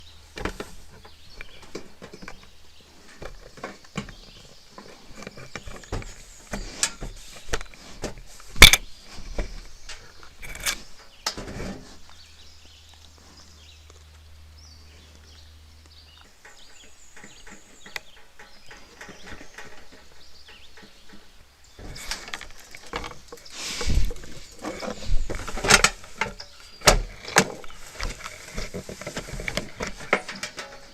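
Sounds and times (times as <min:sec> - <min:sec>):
bear clambering on feeder: 0:16.2 - 0:30.9.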